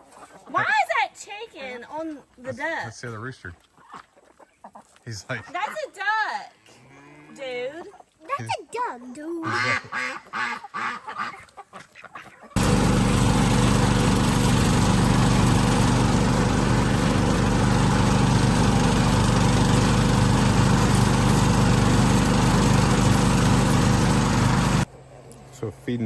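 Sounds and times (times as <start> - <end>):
faint poultry sounds: 3.7 - 6.0, 6.8 - 8.8, 9.4 - 12.6
small engine running: 12.6 - 24.9.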